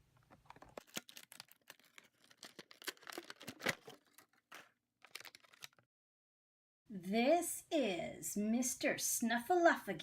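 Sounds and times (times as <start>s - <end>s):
plastic toys and packaging rustling: 0.0s - 5.8s.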